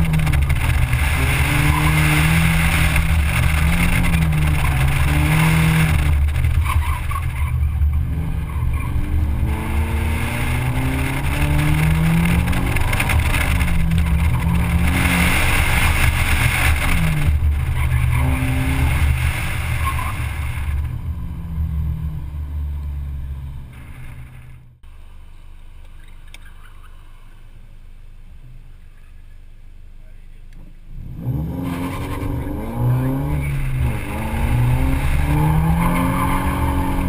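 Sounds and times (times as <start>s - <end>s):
car engine revving hard: 0.0s - 6.6s, 7.8s - 22.8s, 30.9s - 37.0s
car engine idling: 0.0s - 31.0s.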